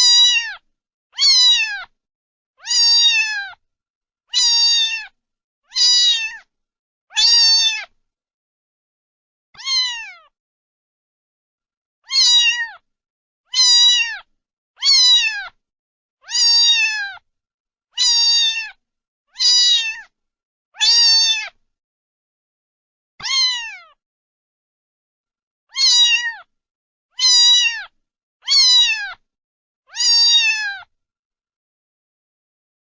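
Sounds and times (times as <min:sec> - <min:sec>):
cat meowing: 0:00.0 - 0:00.6, 0:01.2 - 0:01.9, 0:02.6 - 0:03.6, 0:04.3 - 0:06.5, 0:07.1 - 0:08.0, 0:09.6 - 0:10.3, 0:12.0 - 0:12.8, 0:13.5 - 0:15.6, 0:16.2 - 0:17.2, 0:18.0 - 0:20.1, 0:20.8 - 0:21.6, 0:23.2 - 0:24.0, 0:25.7 - 0:26.5, 0:27.2 - 0:29.2, 0:29.9 - 0:30.9.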